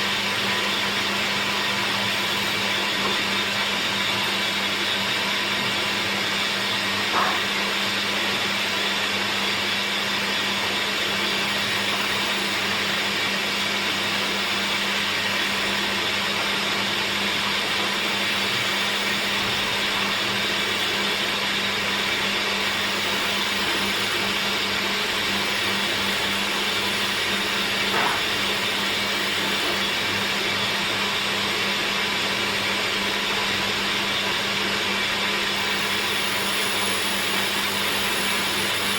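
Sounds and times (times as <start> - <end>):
woodworking machine humming: 0.0 - 38.9
brief knock: 7.1 - 7.5.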